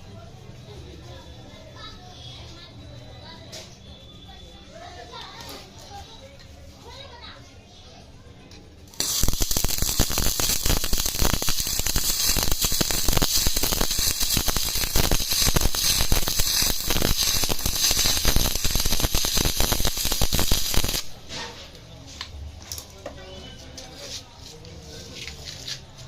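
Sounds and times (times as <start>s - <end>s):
welding arc crackling and sizzling: 8.9s - 21.2s.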